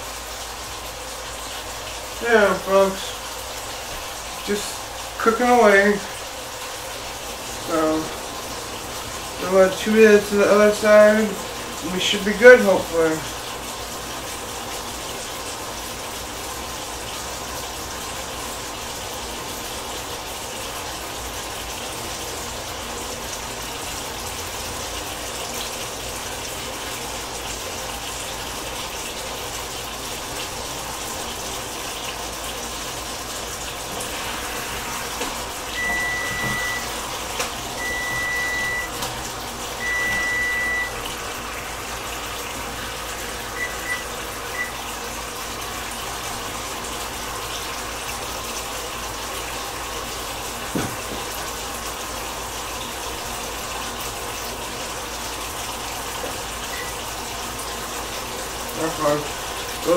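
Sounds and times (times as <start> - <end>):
chicken sizzling in a pan: 0.0 - 53.5
high electronic beeps: 35.8 - 36.9, 37.8 - 39.0, 39.8 - 41.0, 43.6 - 44.7.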